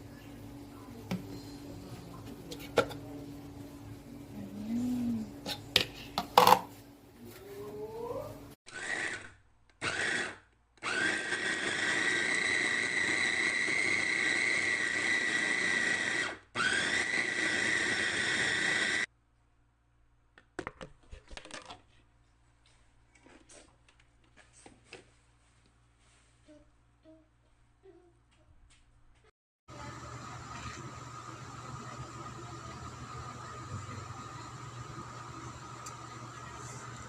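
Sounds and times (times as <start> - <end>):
food processor motor whining: 8.7 - 19.1, 29.7 - 37.0.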